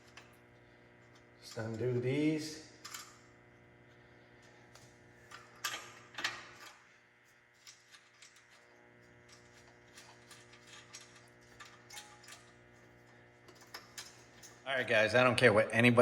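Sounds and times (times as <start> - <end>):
metallic clicks and scrapes: 7.5 - 14.6.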